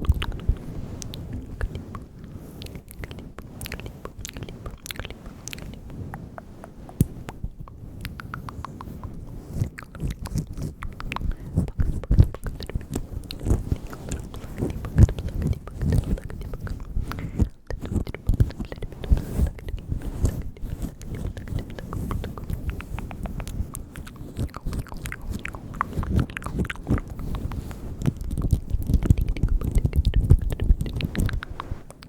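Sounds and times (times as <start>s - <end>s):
mouth clicks and smacks: 0.0s - 32.0s.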